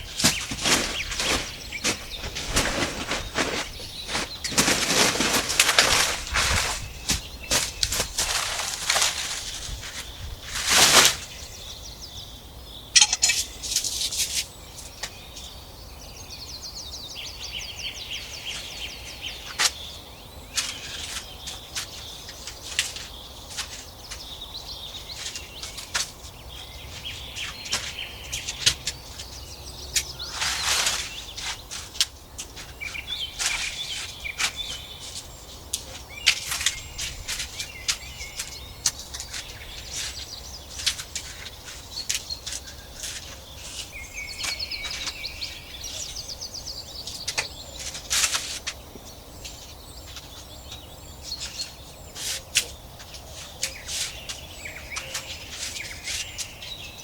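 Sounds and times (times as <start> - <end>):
birds chirping and trilling: 0.0 - 57.0
sharp clicks and snaps: 13.0 - 14.0.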